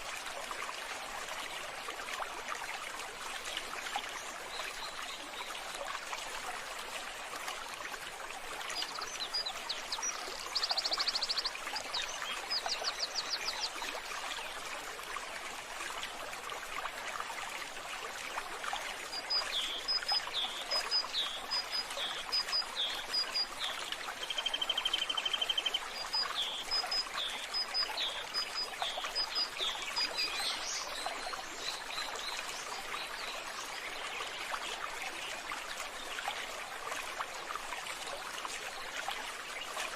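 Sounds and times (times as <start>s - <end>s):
running water: 0.0s - 39.9s
small birds trilling and chirping: 8.8s - 13.8s.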